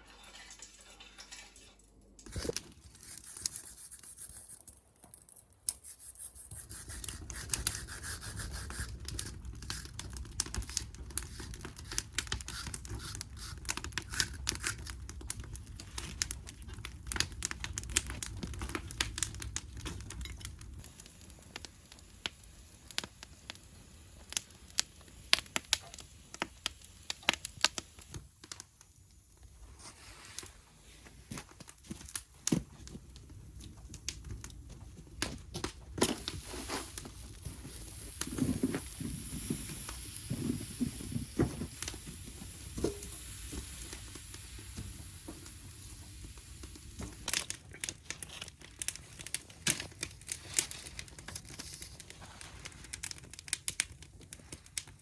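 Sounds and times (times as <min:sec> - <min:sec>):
crinkling and rustling: 0:08.9 - 0:21.7, 0:27.2 - 0:55.0.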